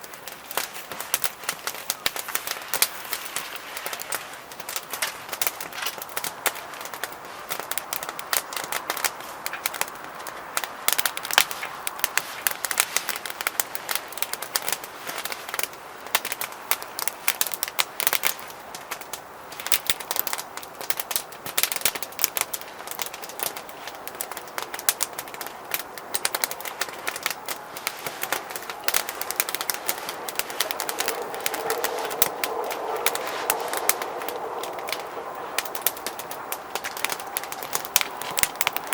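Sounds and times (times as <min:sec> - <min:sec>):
wood fire crackling: 0:00.0 - 0:38.9
bird calling: 0:27.3 - 0:38.9.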